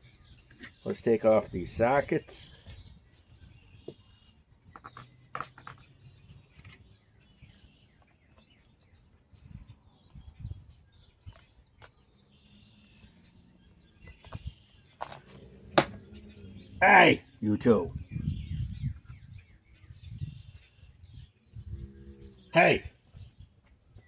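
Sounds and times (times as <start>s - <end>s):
birds chirping faintly: 0.0s - 24.0s.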